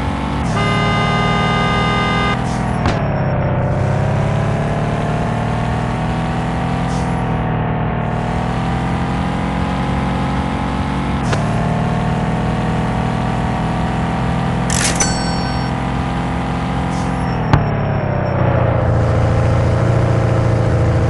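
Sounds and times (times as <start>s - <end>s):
sharp click with high ring: 14.7s - 15.8s.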